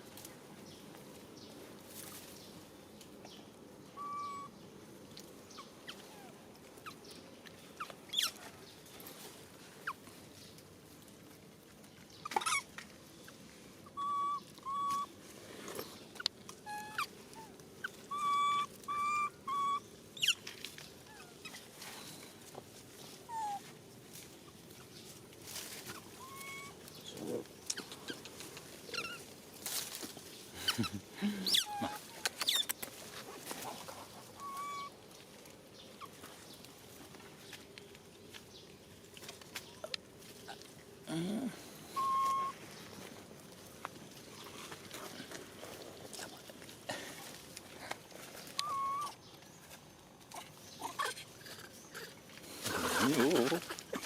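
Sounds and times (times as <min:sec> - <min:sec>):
short animal calls: 0:04.0 - 0:04.5, 0:13.9 - 0:15.1, 0:16.7 - 0:20.4, 0:25.9 - 0:28.2, 0:34.4 - 0:35.0, 0:41.1 - 0:42.6, 0:48.6 - 0:49.2.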